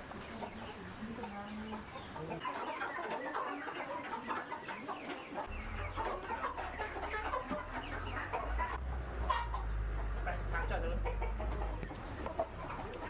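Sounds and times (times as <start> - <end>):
chickens clucking: 0.0 - 13.0
low rumble: 5.5 - 13.0.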